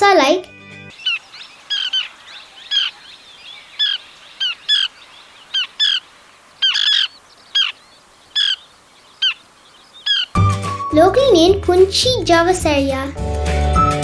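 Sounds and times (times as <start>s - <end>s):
bird high chirps: 0.9s - 10.4s.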